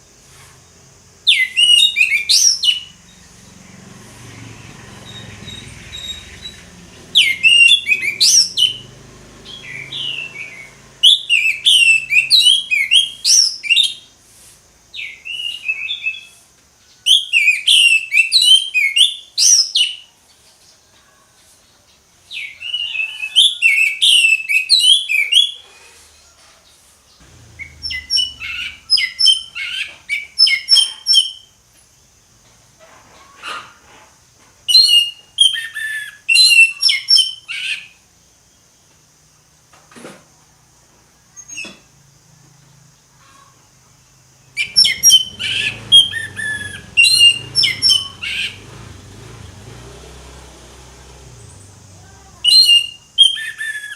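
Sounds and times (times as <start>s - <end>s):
bird singing: 0.0s - 14.2s, 14.9s - 25.8s, 27.1s - 32.6s, 34.7s - 39.6s, 40.8s - 50.1s, 50.8s - 53.9s
thrush singing: 1.6s - 13.1s, 27.2s - 29.6s, 44.5s - 53.1s.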